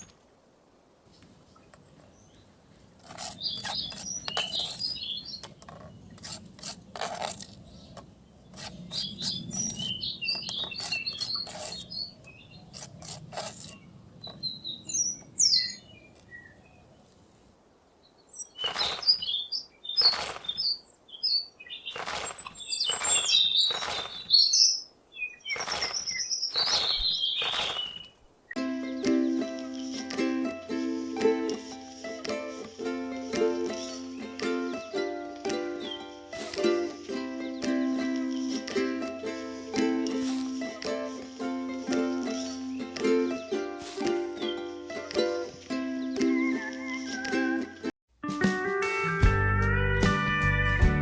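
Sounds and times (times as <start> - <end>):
small birds chirping: 1.1 - 28.4, 43.8 - 45.0.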